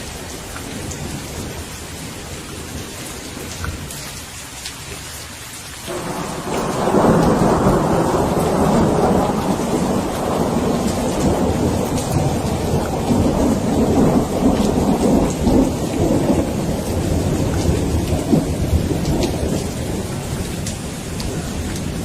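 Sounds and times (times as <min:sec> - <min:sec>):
steady rain falling: 0:00.0 - 0:22.0
thunder rumbling: 0:05.9 - 0:22.0.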